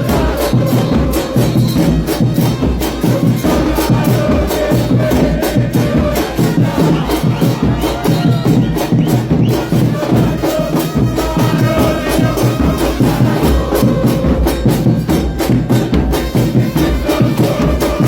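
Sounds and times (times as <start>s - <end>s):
crowd chanting: 0.0s - 18.0s
drum band pounding: 0.0s - 18.0s.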